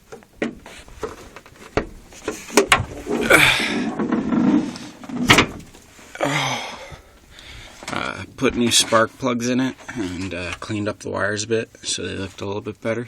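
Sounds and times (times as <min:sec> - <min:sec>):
handling knocks and clicks: 0:00.0 - 0:03.2
rustling: 0:00.0 - 0:06.2
heavy thump: 0:02.6 - 0:05.8.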